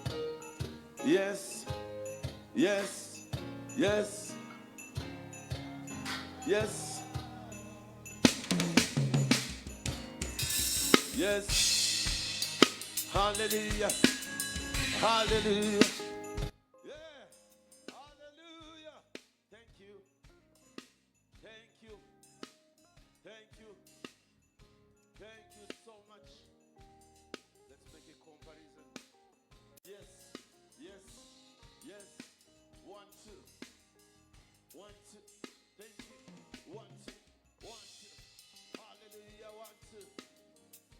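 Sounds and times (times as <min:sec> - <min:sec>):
faint music through speakers: 0:00.0 - 0:19.0, 0:25.1 - 0:40.9
vocal calls: 0:05.3 - 0:08.8
cymbal crash ringing: 0:08.0 - 0:16.5
drum hits: 0:08.2 - 0:16.5.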